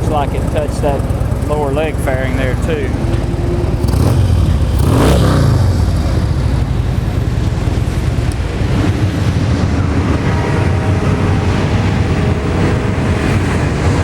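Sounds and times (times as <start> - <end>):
motorcycle engine idling: 0.0 - 10.6.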